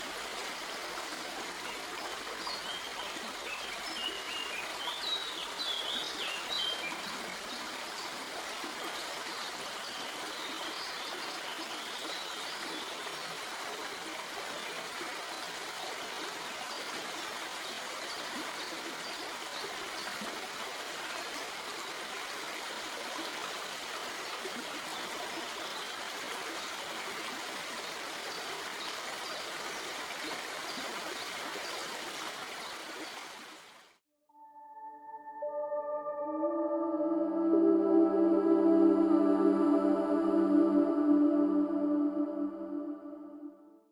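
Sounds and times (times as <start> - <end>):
stream flowing over rocks: 0.0 - 34.0.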